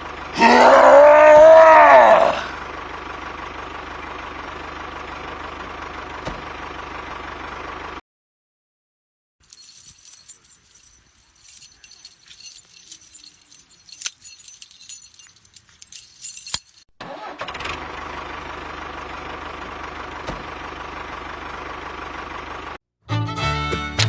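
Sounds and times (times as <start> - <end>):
engine running: 0.0 - 8.0, 17.1 - 24.0
rattling and sharp clicks: 9.5 - 16.8.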